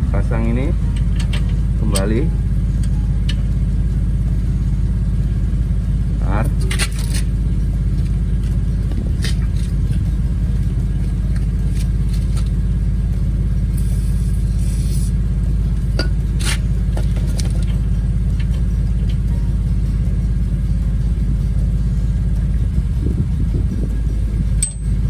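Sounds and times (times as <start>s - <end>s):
steady low rumble: 0.0s - 25.0s
brief hiss: 13.8s - 15.1s
metal tools clicking and knocking: 24.6s - 25.0s.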